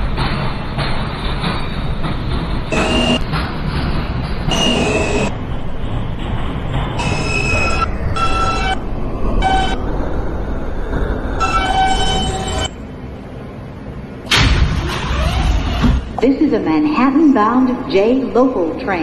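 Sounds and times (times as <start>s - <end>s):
train car rumbling: 0.0s - 19.0s
train wheels squealing: 4.5s - 5.3s, 7.0s - 8.8s, 11.4s - 12.8s
sudden loud rush of noise: 7.8s - 11.5s.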